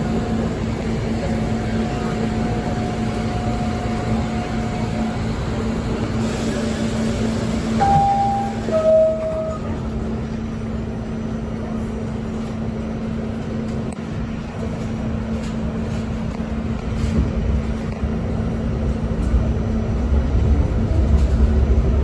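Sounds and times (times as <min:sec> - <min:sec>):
subway car rumble: 0:00.0 - 0:22.0
two-note descending chime: 0:07.8 - 0:09.8.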